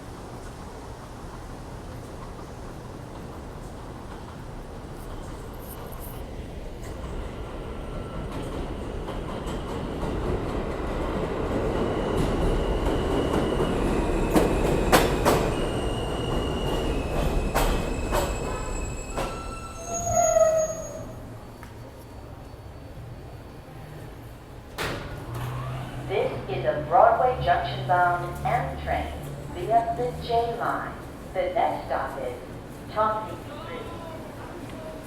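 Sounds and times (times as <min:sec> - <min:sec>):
train rumble: 0:00.0 - 0:35.0.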